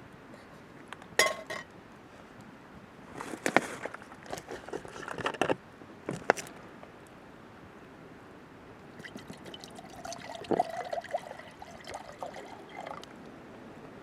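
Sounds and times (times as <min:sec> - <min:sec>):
metal cookware clinking: 0:01.2 - 0:01.6
cookware knocks and rattles: 0:01.2 - 0:01.7.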